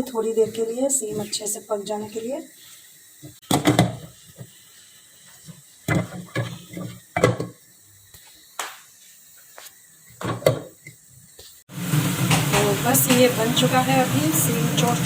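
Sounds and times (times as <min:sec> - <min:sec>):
cookware knocking and clinking: 0:05.9 - 0:07.6.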